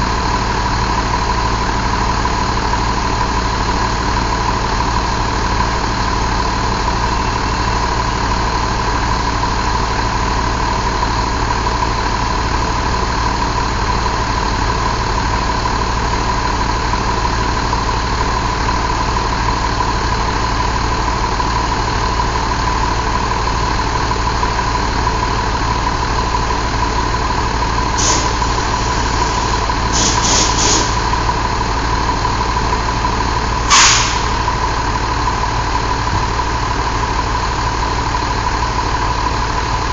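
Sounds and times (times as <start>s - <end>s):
diesel engine running: 0.0s - 39.9s
short hisses of air: 28.0s - 31.1s, 33.7s - 34.4s.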